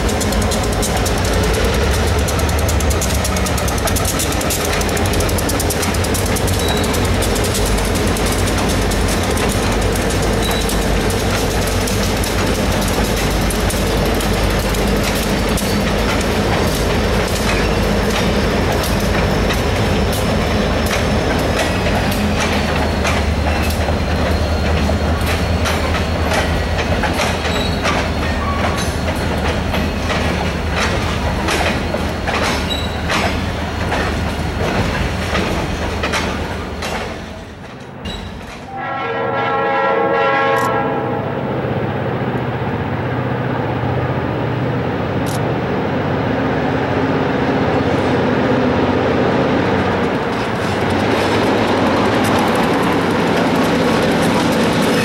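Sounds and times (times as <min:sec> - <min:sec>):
wheels clicking over rail joints: 0:00.0 - 0:38.7
freight train rumble: 0:00.0 - 0:55.0.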